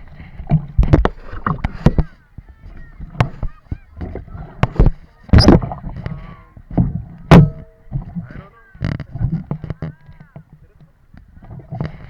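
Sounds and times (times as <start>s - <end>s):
paddle splashing in water: 0.0s - 10.6s
knocks on kayak hull: 6.8s - 8.2s.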